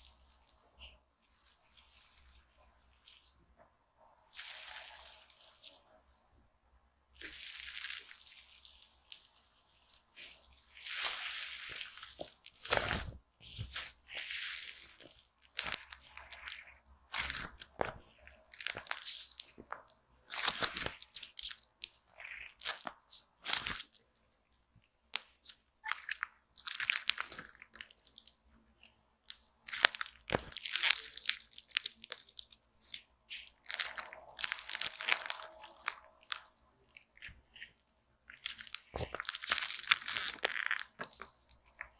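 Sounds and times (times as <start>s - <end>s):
slime squeezed with crackly bursts: 25.3s - 28.5s, 29.4s - 41.9s.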